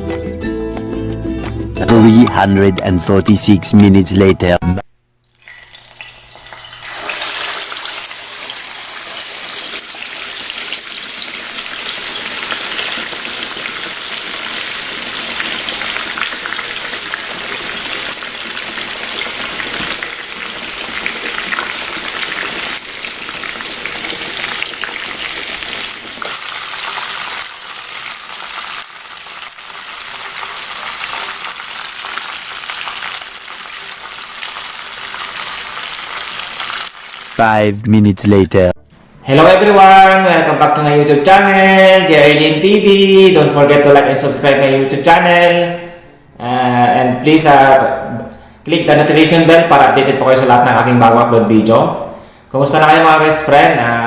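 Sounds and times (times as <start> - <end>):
chicken sizzling in hot oil: 5.3 - 37.4.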